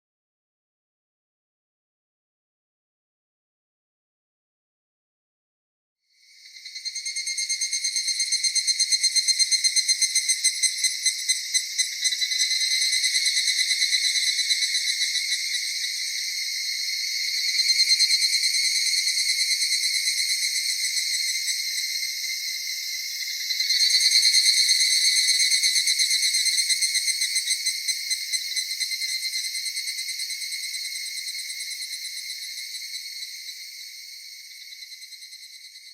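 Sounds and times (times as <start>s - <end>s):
insects trilling: 6.2s - 35.9s.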